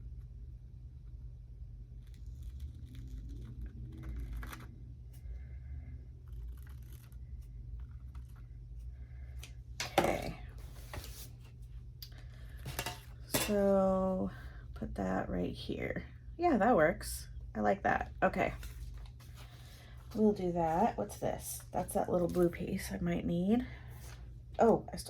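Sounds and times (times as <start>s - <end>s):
steady low hum: 0.0s - 25.0s
paper tearing: 2.0s - 4.8s
paper rustling: 10.1s - 11.6s.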